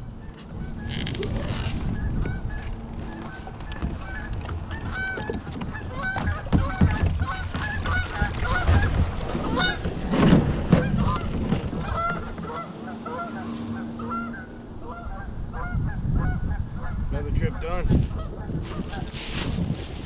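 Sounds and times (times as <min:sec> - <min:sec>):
geese honking: 0:00.0 - 0:19.2.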